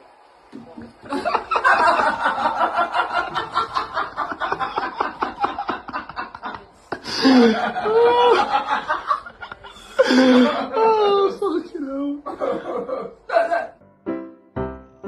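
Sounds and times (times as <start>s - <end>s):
person laughing: 1.1s - 11.6s, 12.2s - 13.8s.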